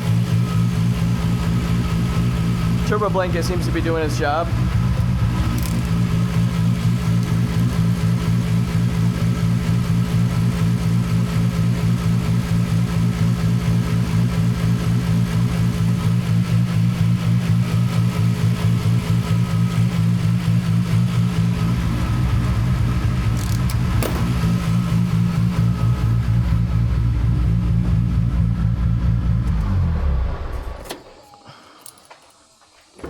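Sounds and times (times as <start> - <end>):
car engine idling: 0.0 - 30.9
deep low rumble: 25.7 - 30.5.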